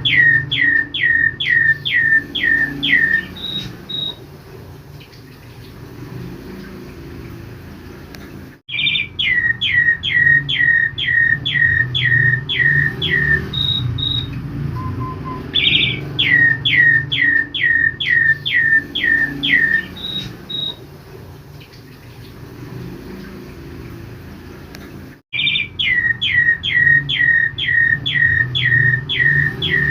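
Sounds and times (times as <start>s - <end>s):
starling singing: 0.0s - 4.3s, 8.7s - 20.9s, 25.3s - 29.9s.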